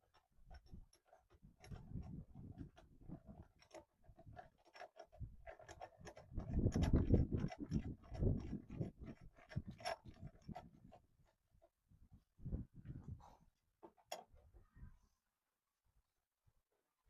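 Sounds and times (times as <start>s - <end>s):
hand tools clicking and scraping: 0.0s - 11.4s.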